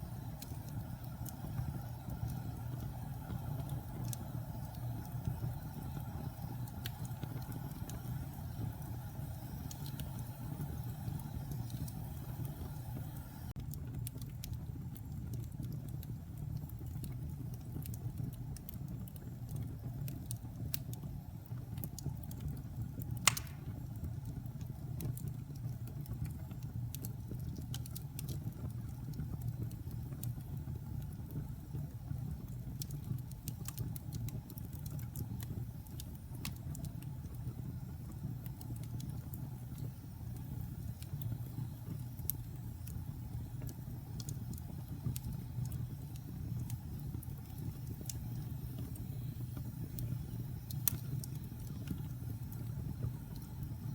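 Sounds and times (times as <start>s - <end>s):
fire crackling: 0.0s - 53.9s
log fire rumbling: 0.0s - 53.9s
loud pop from fire: 23.2s - 23.9s.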